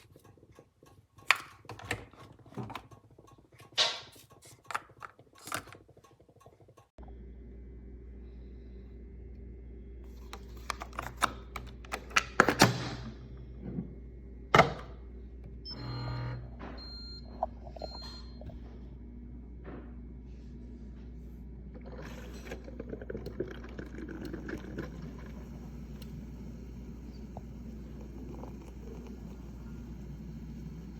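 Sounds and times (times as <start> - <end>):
coffee maker low hum: 7.0 - 30.9.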